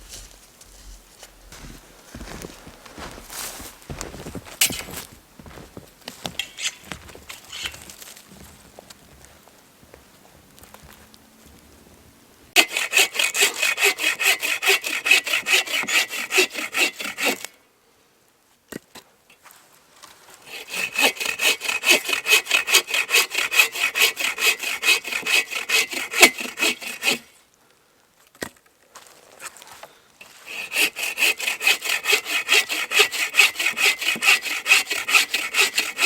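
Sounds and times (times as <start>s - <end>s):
hand saw cutting wood: 6.4s - 7.8s, 12.6s - 17.5s, 20.4s - 27.3s, 30.2s - 36.0s.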